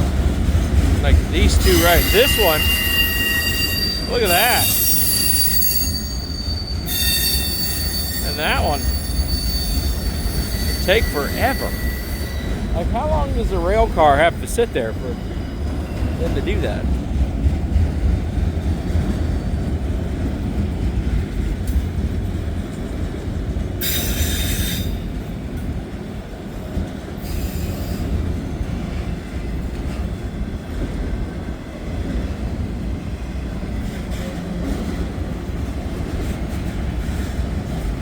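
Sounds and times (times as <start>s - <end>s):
freight train rumbling past: 0.0s - 38.0s
train wheel squeals: 1.3s - 12.8s, 23.8s - 25.1s, 27.2s - 28.2s.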